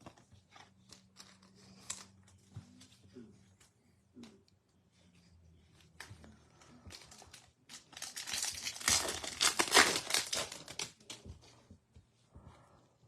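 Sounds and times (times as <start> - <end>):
foil wrapper tearing and crinkling: 7.0 - 11.2.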